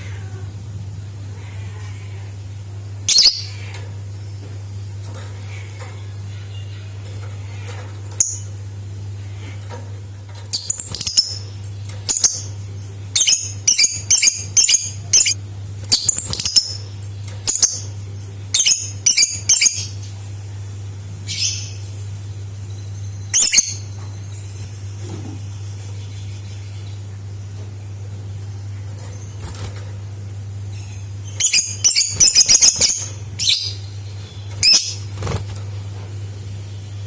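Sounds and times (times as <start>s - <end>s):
low electrical hum: 0.0s - 37.0s
lovebird chirping: 3.1s - 3.6s, 13.2s - 16.8s, 22.6s - 24.6s, 30.7s - 35.1s.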